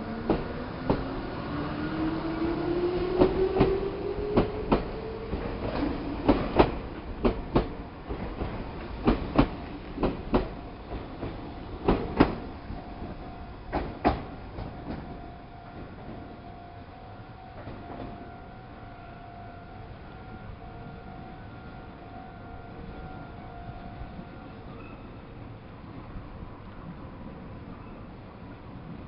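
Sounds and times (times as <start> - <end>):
train wheels clacking over rail joints: 4.4 - 12.5, 13.7 - 15.1.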